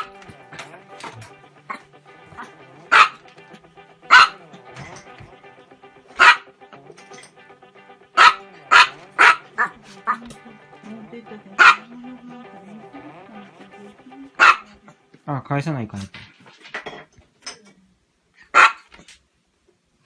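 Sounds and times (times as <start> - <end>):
small dog barking: 2.4 - 3.2, 4.1 - 4.4, 6.2 - 6.5, 8.2 - 10.2, 11.6 - 11.9, 14.4 - 14.8, 18.5 - 18.9.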